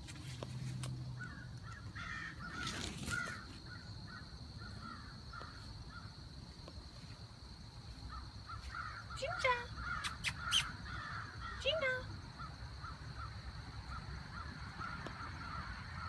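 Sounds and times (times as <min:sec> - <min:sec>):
birds cawing: 0:01.2 - 0:06.1, 0:08.1 - 0:09.2, 0:09.8 - 0:11.6, 0:12.4 - 0:16.0.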